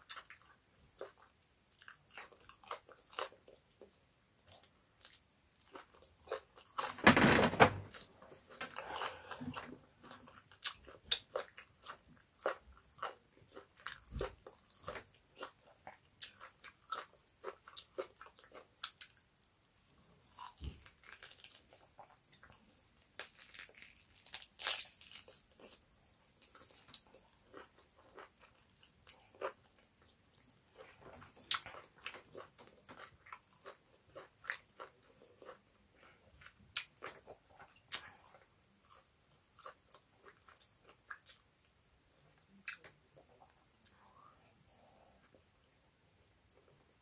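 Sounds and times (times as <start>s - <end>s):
person chewing meat: 8.6s - 19.2s, 26.4s - 30.2s.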